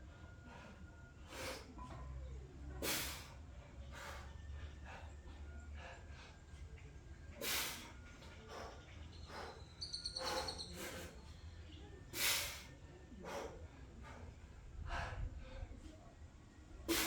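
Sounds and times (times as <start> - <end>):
man breathing hard: 7.4 - 11.2, 12.1 - 15.9.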